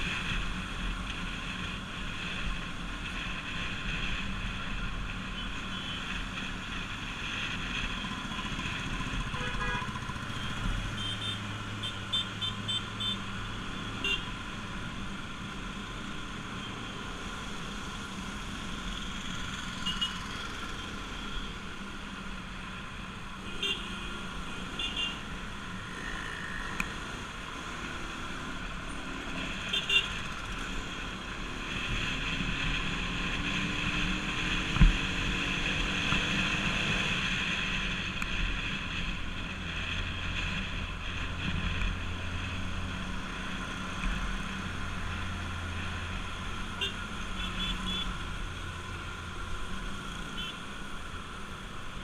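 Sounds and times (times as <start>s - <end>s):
road and wind noise: 0.0s - 52.0s
motorcycle engine running: 6.7s - 12.1s
traffic horn beeps: 9.3s - 13.2s, 14.0s - 14.3s, 19.8s - 20.2s, 23.5s - 24.1s, 24.7s - 25.2s, 29.7s - 30.2s, 46.8s - 48.2s, 50.3s - 50.6s.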